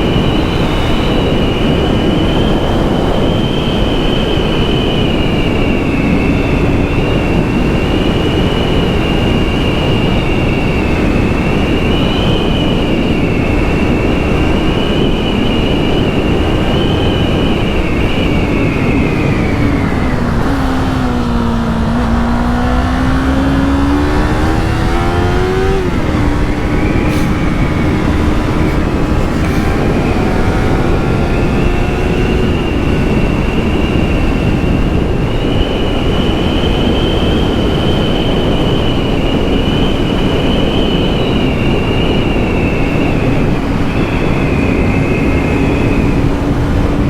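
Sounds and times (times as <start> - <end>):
wind rush: 0.0 - 47.0
motorcycle engine revving: 6.0 - 38.0, 42.3 - 47.0.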